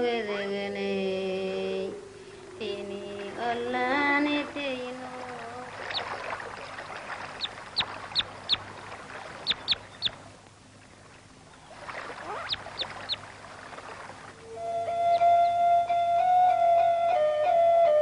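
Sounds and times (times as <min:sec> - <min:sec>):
steady hiss: 0:00.0 - 0:16.0
small birds chirping: 0:01.6 - 0:10.4, 0:11.5 - 0:14.1.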